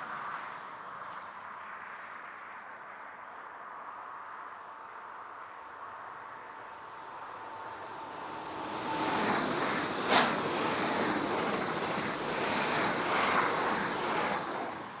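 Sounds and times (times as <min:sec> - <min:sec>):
train rolling noise: 0:05.6 - 0:15.0
wheel beats over rail joints: 0:08.0 - 0:15.0.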